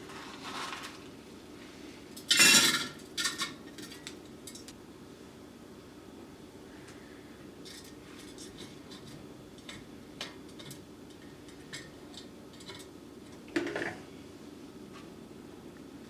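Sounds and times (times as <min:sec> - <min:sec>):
dishes clattering: 0:02.2 - 0:04.7, 0:07.7 - 0:12.9.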